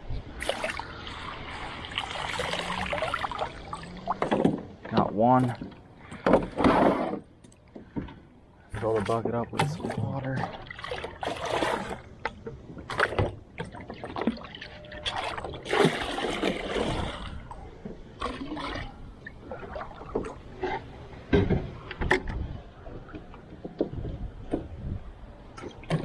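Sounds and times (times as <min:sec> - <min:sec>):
water splashing and gurgling: 0:00.0 - 0:08.0, 0:08.6 - 0:24.9, 0:25.5 - 0:26.0.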